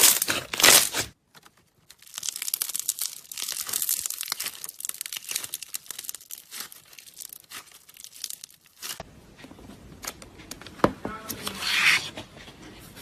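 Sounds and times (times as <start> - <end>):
slime crackling and popping: 0.0 - 9.0.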